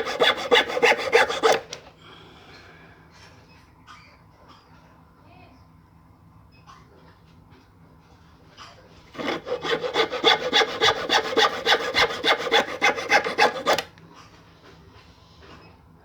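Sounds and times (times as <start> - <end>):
hacksaw cutting wood: 0.0 - 1.8, 9.2 - 13.9.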